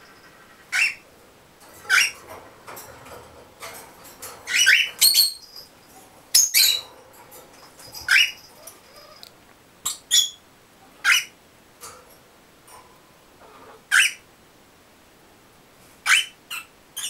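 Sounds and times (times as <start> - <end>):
parrots squawking: 0.2 - 1.0, 1.8 - 2.3, 4.5 - 5.5, 6.3 - 6.9, 8.0 - 10.4, 11.0 - 11.4, 13.4 - 14.2, 16.0 - 17.0.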